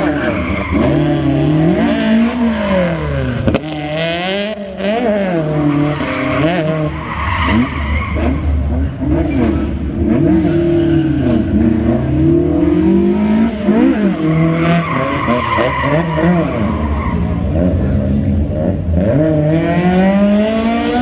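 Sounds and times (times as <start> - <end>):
tyre squeal: 0.0 - 3.2, 5.2 - 17.6
car engines revving: 0.0 - 21.0.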